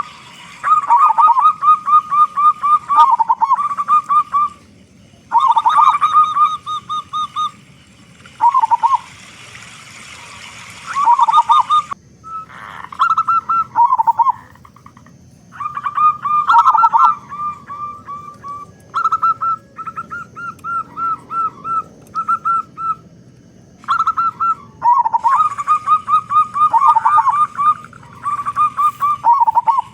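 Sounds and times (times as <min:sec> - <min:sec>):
hiss: 0:00.0 - 0:01.5, 0:07.4 - 0:12.0
dove cooing: 0:00.0 - 0:09.3, 0:10.0 - 0:29.9.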